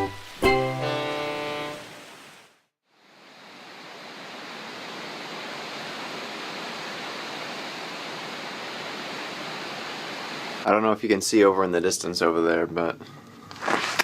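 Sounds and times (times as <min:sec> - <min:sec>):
sea water rushing: 0:03.2 - 0:10.7.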